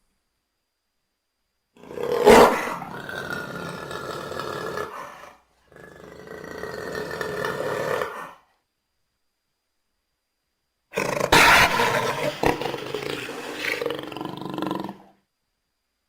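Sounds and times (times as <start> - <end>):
jaguar roaring: 1.8 - 8.4, 11.0 - 15.1.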